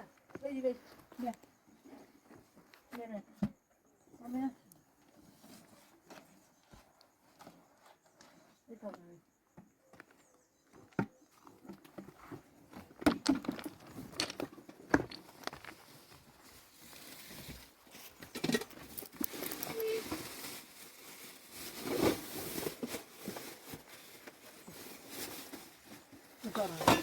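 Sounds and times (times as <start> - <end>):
objects knocking and clattering: 11.0 - 15.8, 18.2 - 20.3, 26.5 - 27.0.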